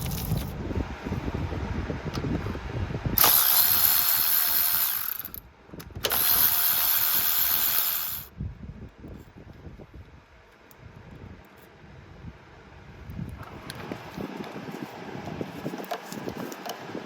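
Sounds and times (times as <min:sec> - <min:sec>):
electric ratchet running: 0:00.0 - 0:00.5, 0:03.2 - 0:05.4, 0:06.0 - 0:08.3
low handling clatter: 0:00.0 - 0:00.6.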